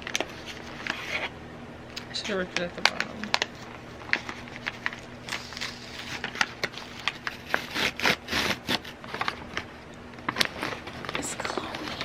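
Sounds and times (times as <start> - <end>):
plastic bag crinkling and tearing: 2.8 - 12.0.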